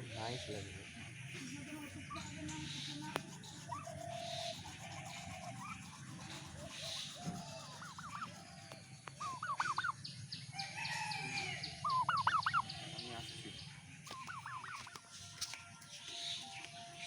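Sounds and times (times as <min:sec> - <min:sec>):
high bird calls: 0:00.0 - 0:17.0
turkey gobbling: 0:03.4 - 0:08.5, 0:09.1 - 0:10.0, 0:11.8 - 0:12.8, 0:14.1 - 0:15.1.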